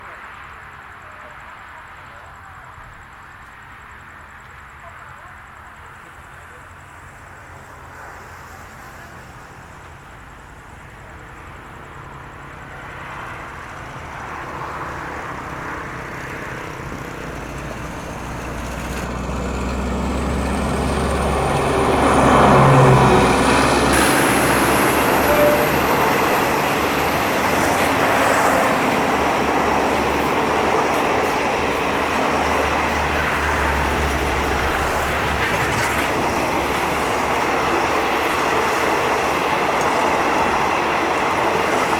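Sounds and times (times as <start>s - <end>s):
wheels rumbling on rail: 0.0s - 41.9s
locomotive engine passing: 6.5s - 41.9s
multi-tone train horn: 21.7s - 34.9s.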